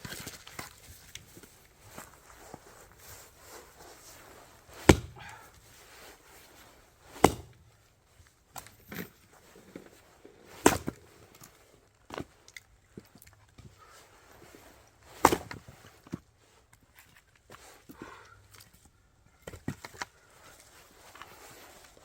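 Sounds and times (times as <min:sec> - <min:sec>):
axe splitting firewood: 0:00.0 - 0:06.0, 0:07.0 - 0:07.9, 0:09.8 - 0:12.3, 0:15.0 - 0:16.2.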